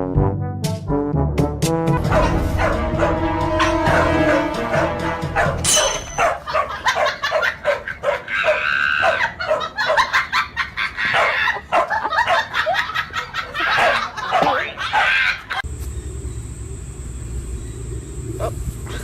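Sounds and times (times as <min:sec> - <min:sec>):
dog barking and yipping: 0:02.0 - 0:15.6
people laughing: 0:06.4 - 0:15.6.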